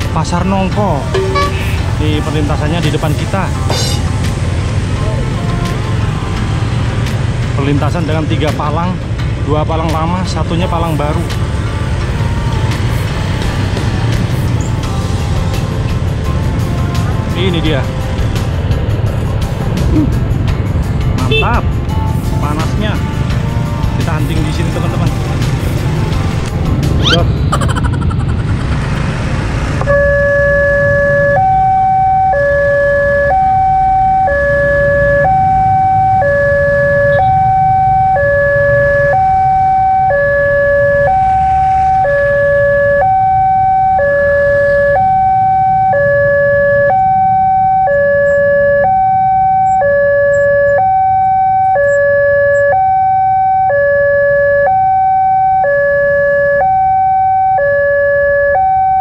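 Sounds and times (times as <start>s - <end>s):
low rumble of idling traffic: 0.0s - 59.0s
two-tone level crossing alarm: 1.1s - 1.7s, 29.9s - 59.0s.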